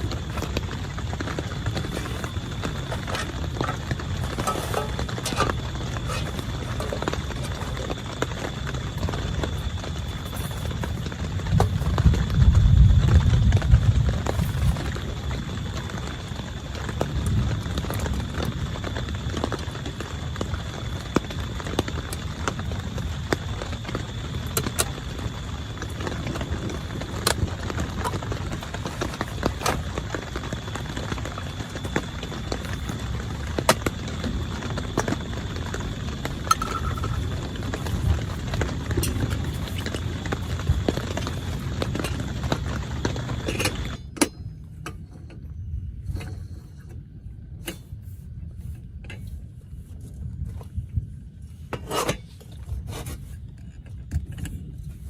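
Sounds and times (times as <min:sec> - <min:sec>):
heavy rain on tent: 0:00.0 - 0:44.0
gear being handled: 0:01.6 - 0:08.0.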